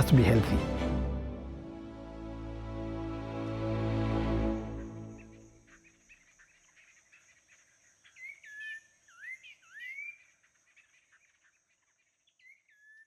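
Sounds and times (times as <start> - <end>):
insects droning: 3.0 - 12.6
bird singing whistled notes: 8.0 - 10.3, 12.2 - 13.0.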